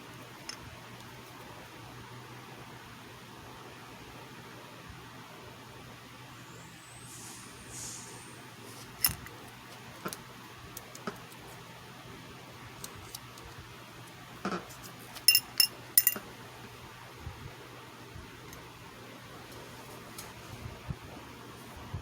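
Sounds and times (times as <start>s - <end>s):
low steady hum: 5.8s - 14.5s
light clicks and taps of tools: 15.2s - 16.2s.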